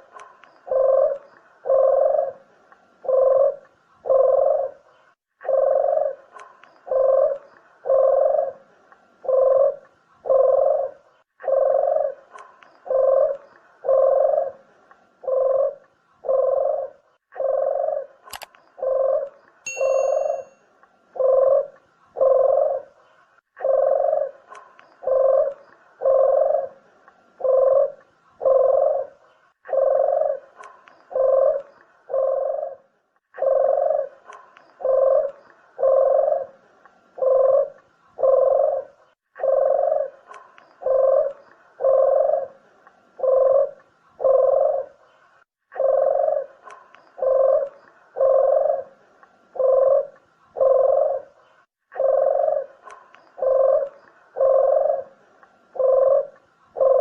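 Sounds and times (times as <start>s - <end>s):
dove cooing: 0.0s - 20.5s, 21.2s - 57.0s
sharp click: 18.3s - 18.6s.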